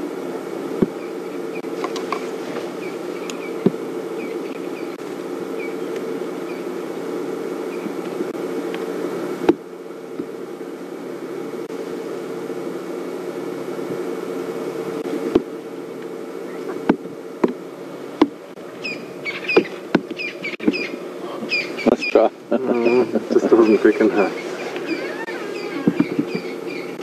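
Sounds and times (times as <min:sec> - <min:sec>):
steady low drone: 0:00.0 - 0:27.0
bird chirps: 0:02.7 - 0:06.7, 0:18.8 - 0:27.0.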